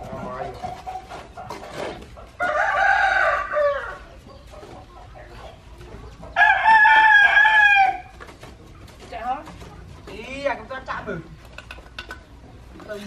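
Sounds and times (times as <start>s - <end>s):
rooster crowing: 2.4s - 4.1s, 6.4s - 8.1s.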